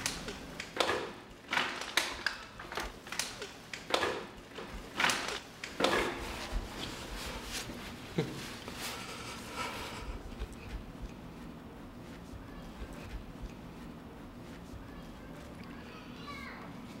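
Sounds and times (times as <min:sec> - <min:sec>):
man breathing: 0:08.7 - 0:11.1.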